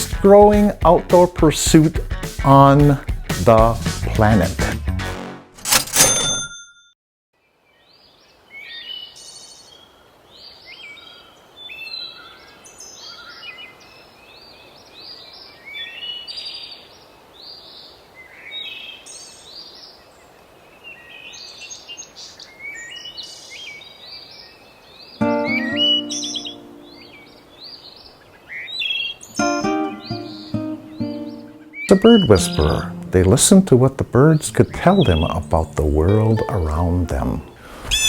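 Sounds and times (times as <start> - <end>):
faint steady hiss: 7.4 - 38.0
songbirds chirping chorus: 7.4 - 38.0
music notes: 25.2 - 27.3, 29.4 - 37.6.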